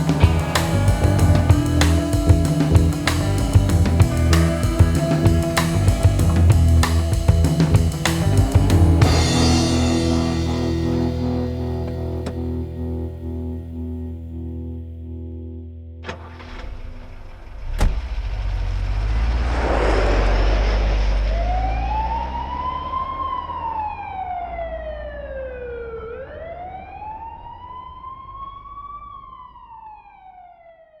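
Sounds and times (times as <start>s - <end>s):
low traffic rumble: 0.0s - 14.6s, 16.4s - 29.7s
rush of noise: 16.4s - 22.5s
siren wailing: 20.8s - 30.9s.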